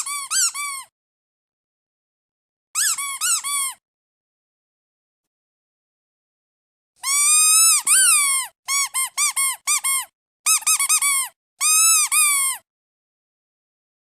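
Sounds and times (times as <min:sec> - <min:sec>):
rubber duck toy squeaking: 0:00.0 - 0:00.9, 0:02.8 - 0:03.8, 0:07.0 - 0:12.7.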